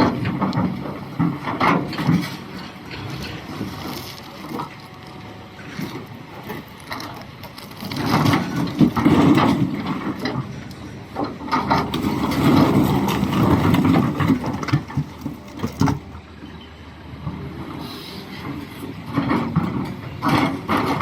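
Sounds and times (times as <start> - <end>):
excavator bucket scraping rock: 0.0 - 16.2, 17.6 - 21.0
low engine rumble: 0.0 - 21.0
stones knocking and grinding: 0.2 - 5.1, 5.8 - 10.4, 11.3 - 16.1.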